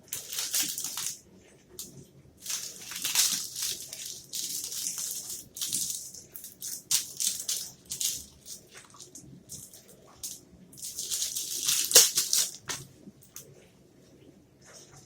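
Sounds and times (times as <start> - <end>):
crunchy chewing: 1.8 - 13.4.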